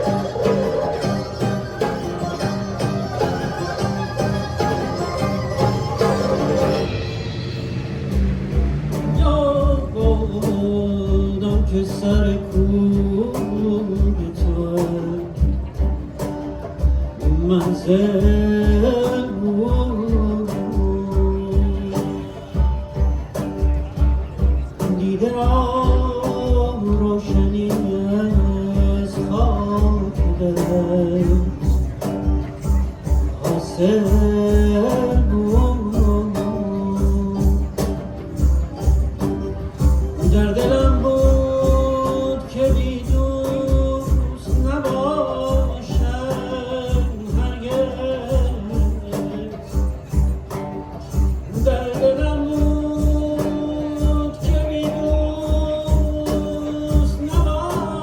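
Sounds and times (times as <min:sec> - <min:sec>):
sliding melody line: 0:00.0 - 0:11.0
bowed string melody: 0:00.0 - 0:58.0
low hand-drum strokes: 0:00.0 - 0:58.0
plucked strings: 0:00.0 - 0:58.0.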